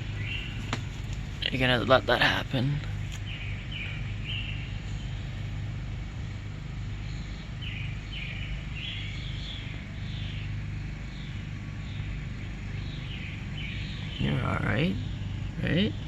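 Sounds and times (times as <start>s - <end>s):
birds chirping: 0.0s - 16.0s
steady low hum: 0.0s - 16.0s.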